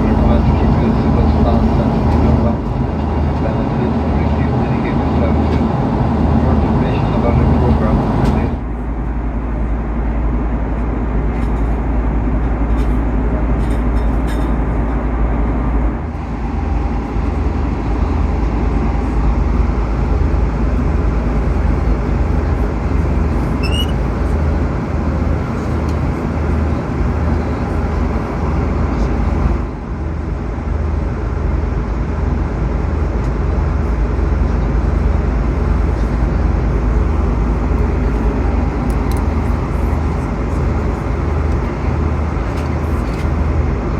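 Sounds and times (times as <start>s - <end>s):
airplane cabin engine rumble: 0.0s - 43.9s.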